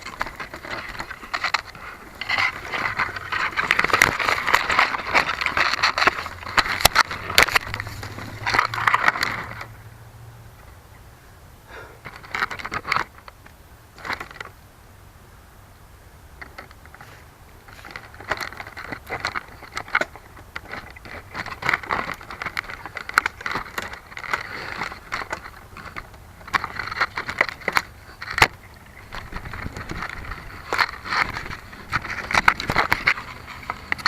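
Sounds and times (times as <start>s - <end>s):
crackling and scraping: 0.0s - 10.0s, 11.7s - 14.6s, 16.4s - 34.0s.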